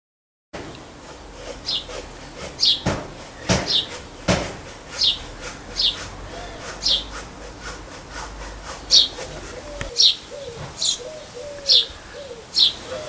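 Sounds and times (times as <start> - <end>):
sharp knocks: 1.5 - 9.9
songbird chirping: 1.6 - 1.9, 2.6 - 4.4, 5.0 - 7.7, 8.7 - 13.0.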